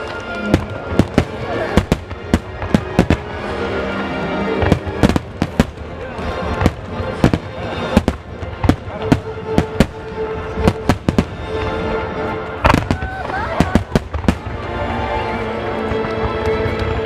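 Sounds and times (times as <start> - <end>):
fireworks bangs: 0.0 - 3.4, 4.6 - 11.8, 12.6 - 15.2
background music: 0.0 - 17.0.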